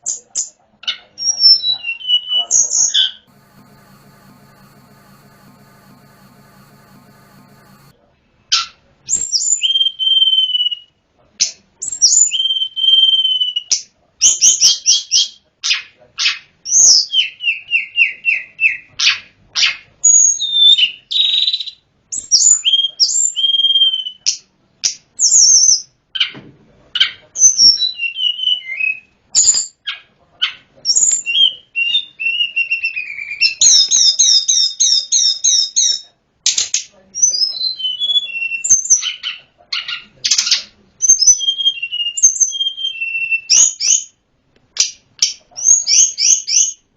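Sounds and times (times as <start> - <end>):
songbird whistling and trilling: 41.2 - 44.0.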